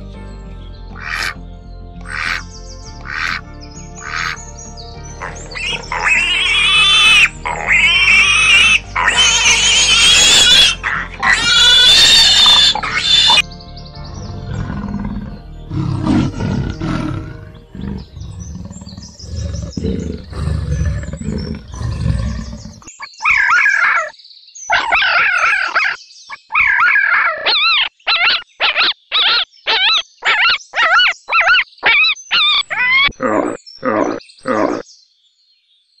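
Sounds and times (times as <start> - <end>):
animal squeals: 4.0 - 4.4, 5.2 - 13.4, 14.5 - 24.1, 24.7 - 34.8
animal grunting calls: 5.2 - 13.4, 14.2 - 22.9, 32.7 - 34.8.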